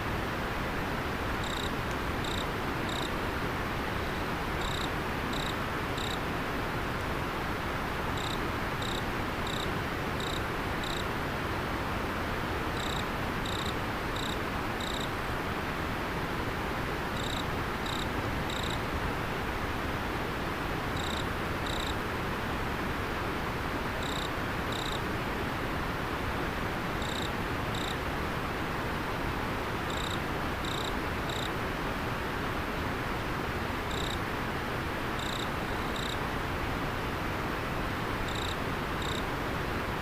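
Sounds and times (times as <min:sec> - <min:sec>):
cricket chirping: 0:01.4 - 0:03.2, 0:04.6 - 0:06.2, 0:08.2 - 0:11.1, 0:12.8 - 0:15.1, 0:17.2 - 0:18.8, 0:21.0 - 0:22.0, 0:24.0 - 0:25.0, 0:27.0 - 0:28.0, 0:29.9 - 0:31.5, 0:33.9 - 0:34.2, 0:35.2 - 0:36.2, 0:38.3 - 0:39.3.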